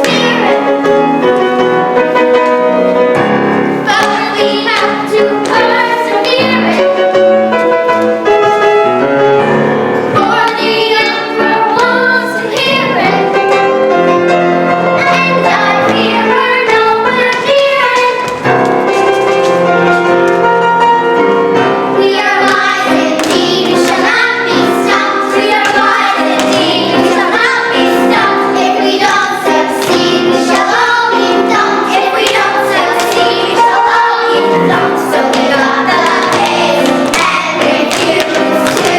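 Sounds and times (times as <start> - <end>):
children singing: 0.0 - 0.9, 3.8 - 7.0, 10.2 - 13.5, 14.9 - 18.4, 21.9 - 38.9
piano accompaniment: 0.0 - 38.9.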